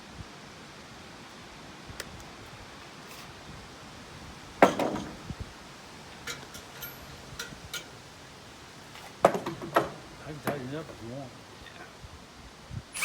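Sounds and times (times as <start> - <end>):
sharp metallic clank: 4.6 - 5.3, 6.2 - 8.0
metal tools clinking: 4.6 - 11.7.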